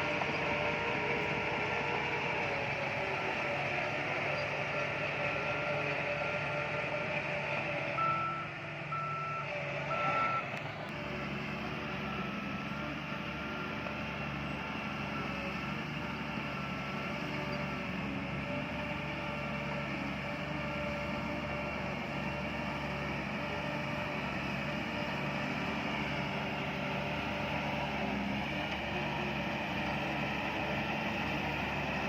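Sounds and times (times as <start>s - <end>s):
diesel engine running: 0.0s - 32.0s
reversing alarm beeping: 8.0s - 10.5s.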